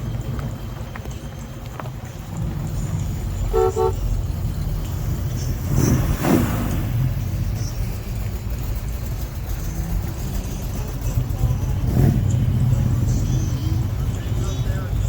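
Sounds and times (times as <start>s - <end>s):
cars passing: 0.0s - 15.0s
car horn toots: 3.5s - 4.1s.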